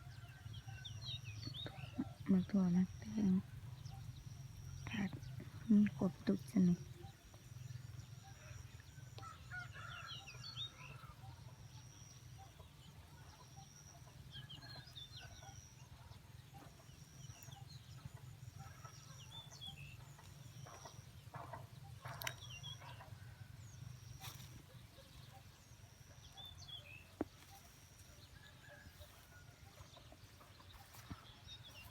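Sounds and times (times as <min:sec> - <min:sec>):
chickens clucking: 0:10.9 - 0:23.6, 0:24.2 - 0:31.9.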